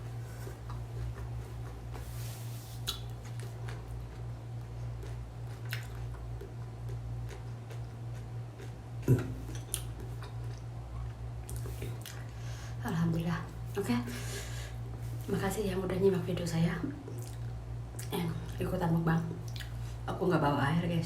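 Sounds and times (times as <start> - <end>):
eating clicks and smacks: 2.8 - 4.2, 5.0 - 10.7.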